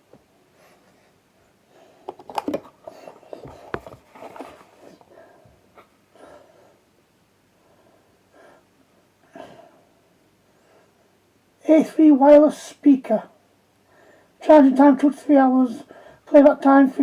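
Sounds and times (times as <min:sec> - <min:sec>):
packaging clicks and knocks: 0:02.1 - 0:05.1
packaging rustling: 0:02.1 - 0:05.2.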